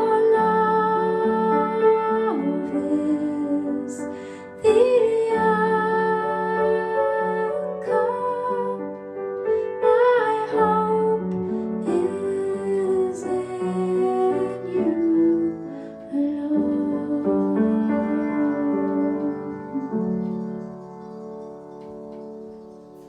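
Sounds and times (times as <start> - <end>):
woman singing: 0.0 - 20.3
piano accompaniment: 0.0 - 23.0.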